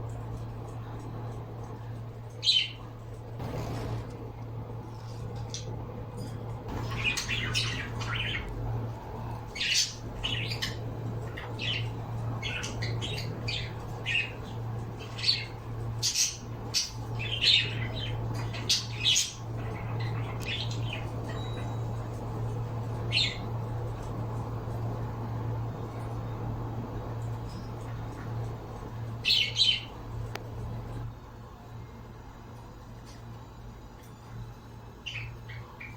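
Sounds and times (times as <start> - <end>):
steady low hum: 0.0 - 35.9
pet birds squawking and chirping: 2.3 - 4.0, 6.7 - 24.3, 27.2 - 30.2, 35.0 - 35.9.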